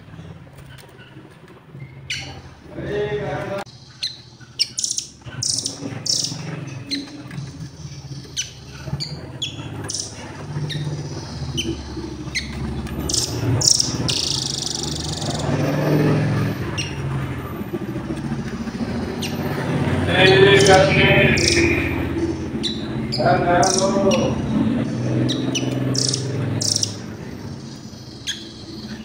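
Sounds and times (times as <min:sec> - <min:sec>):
traffic murmur: 0:00.0 - 0:29.0
nuthatch call notes: 0:03.9 - 0:07.1, 0:09.4 - 0:15.6, 0:20.2 - 0:24.6, 0:25.3 - 0:27.0
crowd noise: 0:13.0 - 0:27.9.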